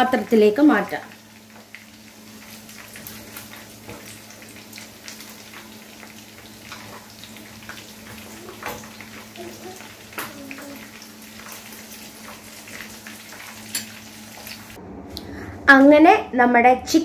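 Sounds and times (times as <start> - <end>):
chicken sizzling in hot oil: 0.0 - 14.8.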